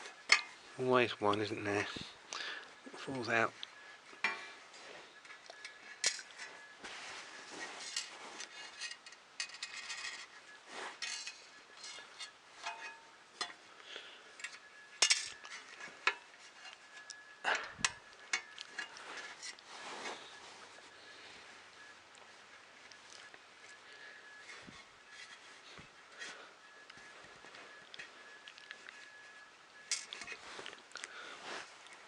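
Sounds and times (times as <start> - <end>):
small hard parts clinking: 5.2 - 6.6, 7.8 - 10.4, 11.0 - 13.7, 14.4 - 19.6.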